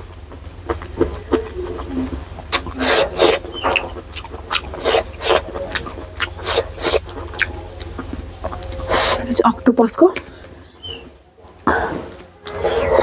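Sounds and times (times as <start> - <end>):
person chewing: 0.0 - 9.5, 10.2 - 13.0.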